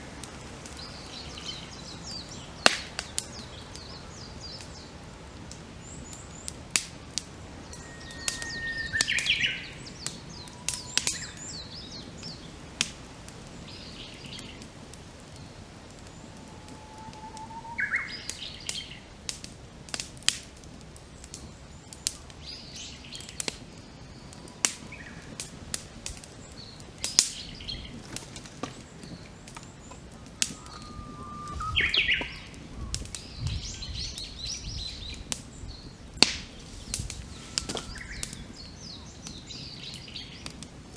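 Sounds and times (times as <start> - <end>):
fire popping: 0.0 - 40.9
wood fire crackling: 0.0 - 40.9
songbird whistling: 5.9 - 12.2, 16.1 - 19.0, 29.8 - 35.3, 36.7 - 40.4.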